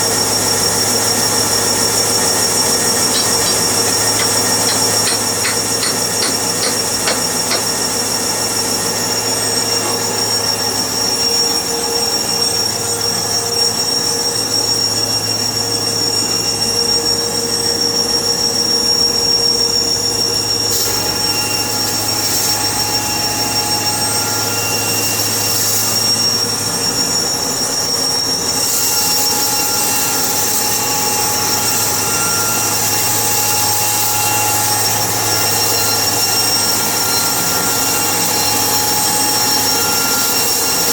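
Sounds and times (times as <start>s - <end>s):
sawmill machinery humming: 0.0s - 40.9s
squealing whine: 0.1s - 18.0s, 19.5s - 40.9s
saw cutting hiss: 1.4s - 11.2s.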